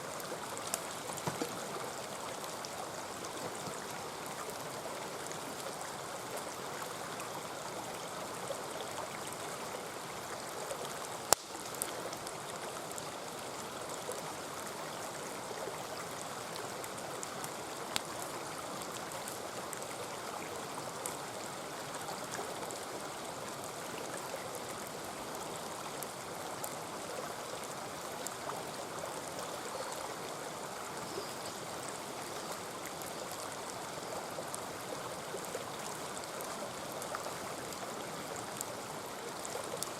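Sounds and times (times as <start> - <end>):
stream flowing: 0.0 - 39.9
campfire popping and crackling: 0.3 - 2.4, 11.2 - 13.0.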